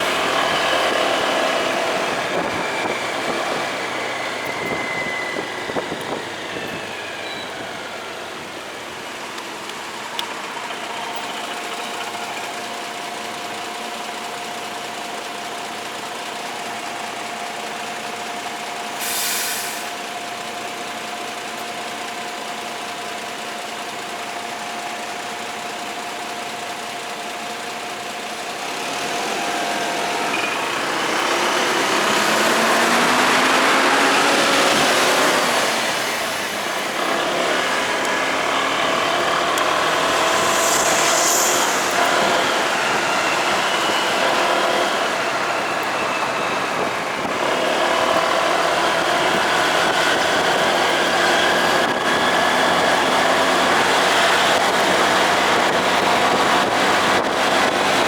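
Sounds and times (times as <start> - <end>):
short hiss: 19.0 - 20.0, 39.4 - 43.4.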